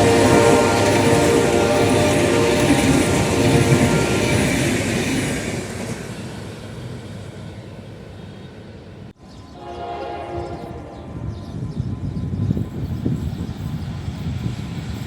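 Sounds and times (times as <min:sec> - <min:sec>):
locomotive horn: 0:00.0 - 0:04.8, 0:09.5 - 0:11.6
train rumble: 0:00.0 - 0:15.0.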